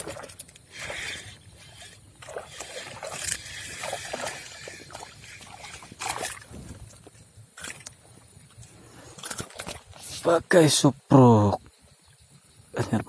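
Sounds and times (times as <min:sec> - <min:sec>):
water sloshing and splashing: 0:00.0 - 0:10.4.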